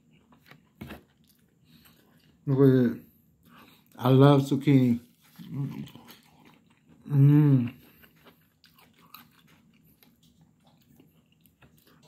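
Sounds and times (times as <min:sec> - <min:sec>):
person chewing: 0:00.0 - 0:02.4, 0:05.1 - 0:12.0
person humming mmm: 0:07.0 - 0:07.8.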